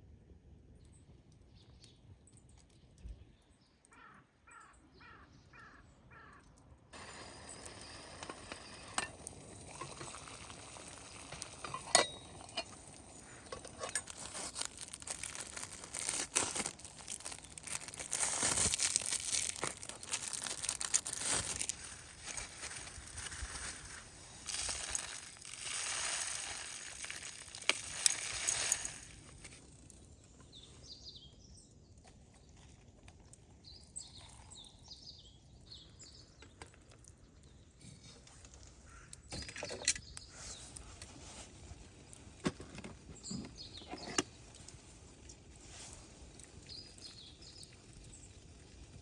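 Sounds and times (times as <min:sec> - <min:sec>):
sizzling hiss with crackles: 0:06.9 - 0:31.0, 0:43.2 - 0:49.0
clinks: 0:11.5 - 0:14.2.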